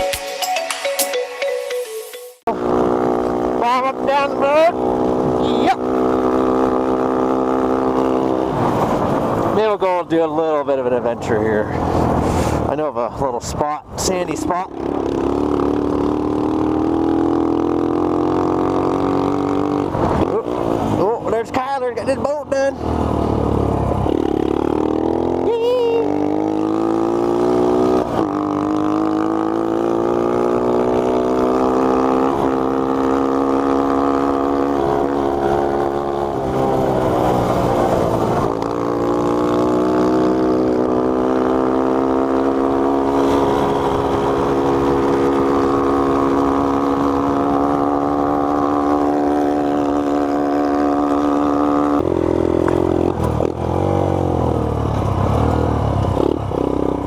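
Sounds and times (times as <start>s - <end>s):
minibike engine accelerating: 22.8s - 57.0s.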